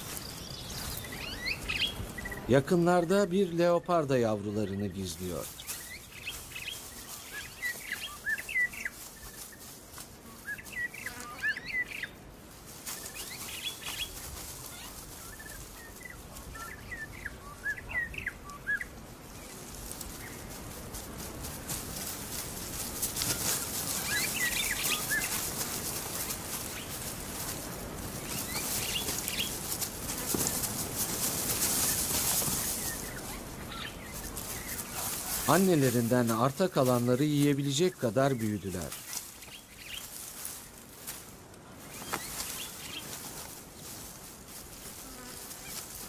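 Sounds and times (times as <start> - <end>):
small birds chirping: 0.0 - 41.2, 41.8 - 46.0
steady outdoor hiss: 0.0 - 46.0.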